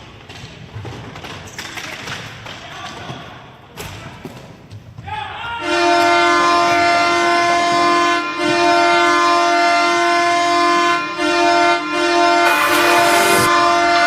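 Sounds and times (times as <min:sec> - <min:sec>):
goal horn blaring: 0:05.7 - 0:14.0.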